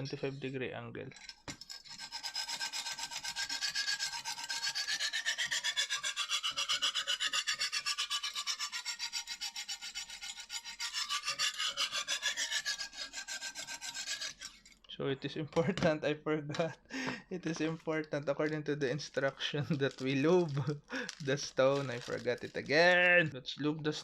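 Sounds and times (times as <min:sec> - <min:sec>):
stone scraping knife edge: 0:01.2 - 0:14.8.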